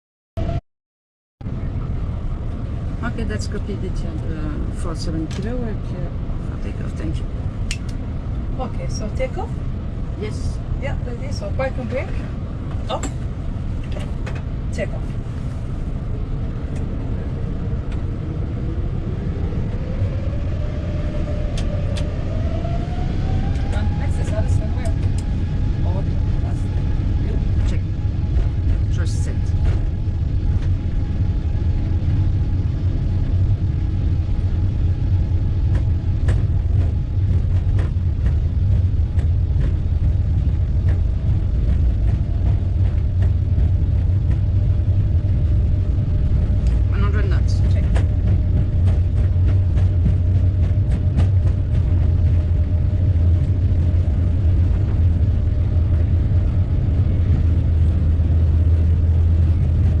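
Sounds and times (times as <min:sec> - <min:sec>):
aircraft engines rumbling: 0:01.4 - 1:00.0.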